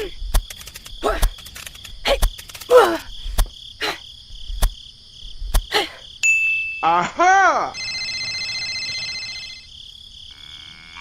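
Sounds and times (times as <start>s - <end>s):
sharp clicks: 0.0s - 3.5s.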